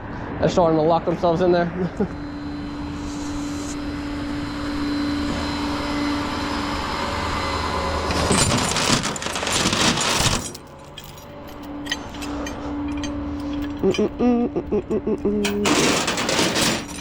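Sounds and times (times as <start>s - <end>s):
vehicle engine humming: 0.0s - 9.6s, 10.4s - 15.9s
loud rattling and clattering: 8.1s - 11.2s, 15.5s - 17.0s.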